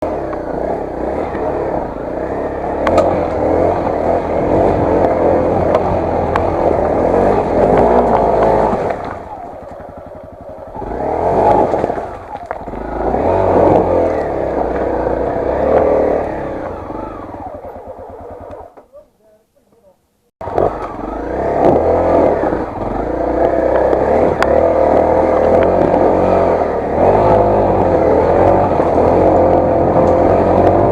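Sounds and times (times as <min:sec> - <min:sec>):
motorcycle engine revving off-road: 0:00.0 - 0:19.4, 0:20.4 - 0:30.9
stones striking bike: 0:02.8 - 0:03.9, 0:04.9 - 0:10.0.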